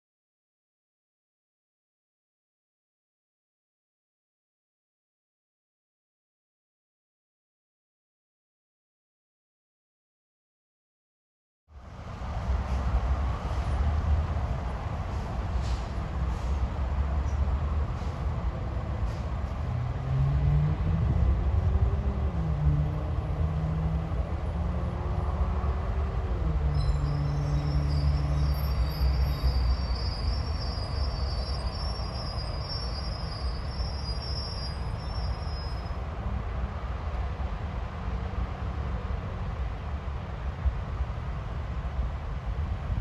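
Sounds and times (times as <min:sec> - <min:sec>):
train wheels rumbling on rail: 0:11.8 - 0:43.0.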